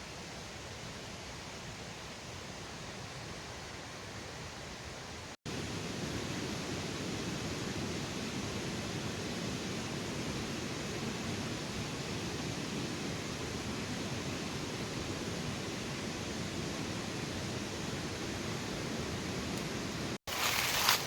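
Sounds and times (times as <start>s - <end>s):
running water rushing: 20.3s - 21.0s.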